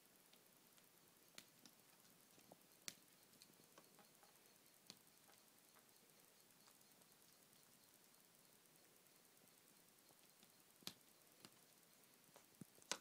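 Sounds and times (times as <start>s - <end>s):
faint small clicks: 10.0s - 13.0s.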